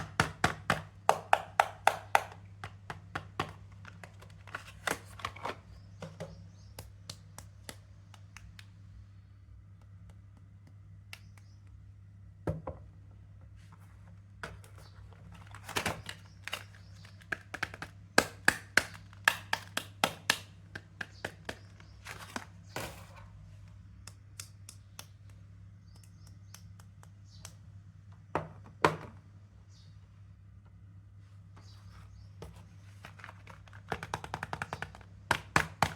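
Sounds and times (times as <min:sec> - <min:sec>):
low steady hum: 0:00.0 - 0:35.9
packaging crinkling and clicking: 0:14.5 - 0:23.0.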